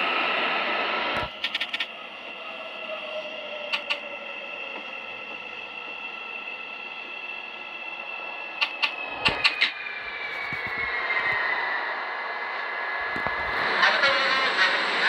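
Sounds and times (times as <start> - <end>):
electric train motor whine: 0.0 - 15.0
wheels clicking over rail joints: 1.2 - 5.9, 8.6 - 11.5.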